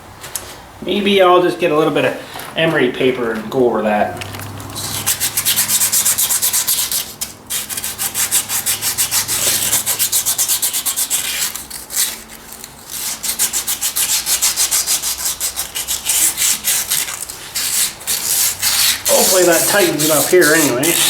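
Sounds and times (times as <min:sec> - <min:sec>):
sandpaper rubbing on metal: 0:04.8 - 0:21.0.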